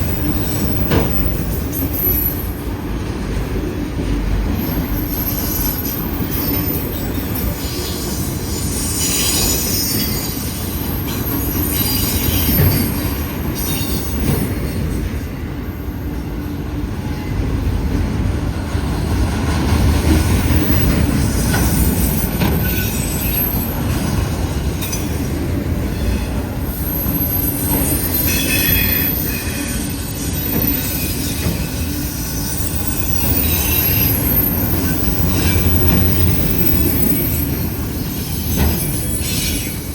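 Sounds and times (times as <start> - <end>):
freight train rumbling: 0.0 - 39.9
high-pitched wheel squeal: 26.0 - 39.9.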